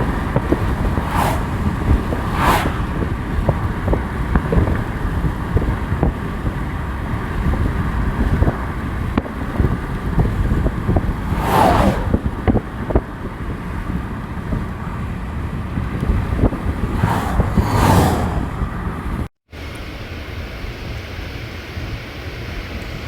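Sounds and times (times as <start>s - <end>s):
rushing swells: 0.0s - 3.8s, 10.9s - 12.4s, 16.7s - 19.3s
vehicle road and engine noise: 0.0s - 21.0s.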